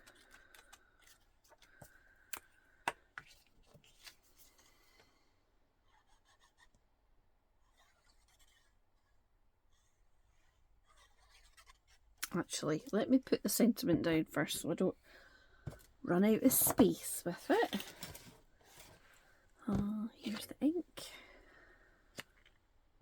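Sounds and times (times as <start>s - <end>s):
paper rustling: 16.7s - 20.5s.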